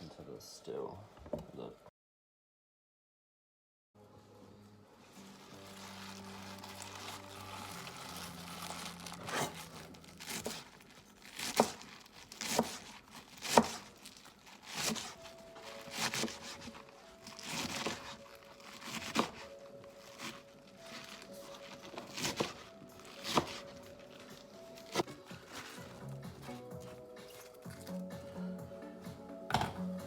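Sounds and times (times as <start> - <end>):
soft background music: 4.0 - 30.0
vegetables crunching being cut: 6.7 - 28.0.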